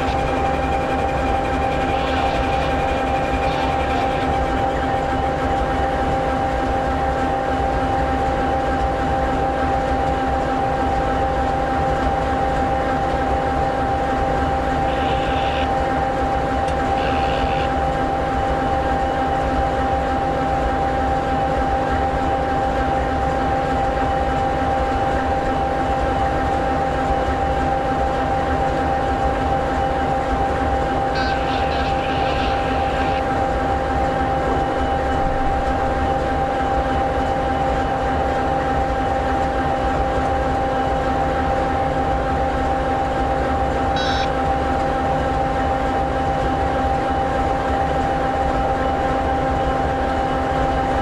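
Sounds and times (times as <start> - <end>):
diesel locomotive engine idling: 14.6 - 22.4, 29.0 - 38.6.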